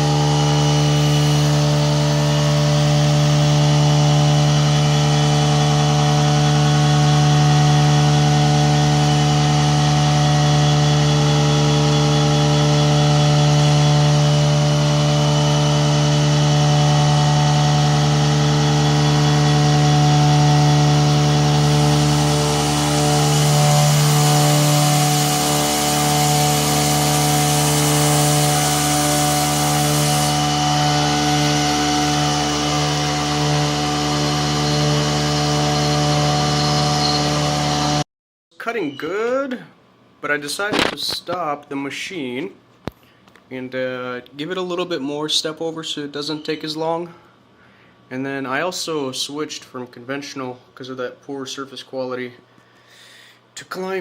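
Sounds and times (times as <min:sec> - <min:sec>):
milling machine cutting metal: 0:00.0 - 0:38.0.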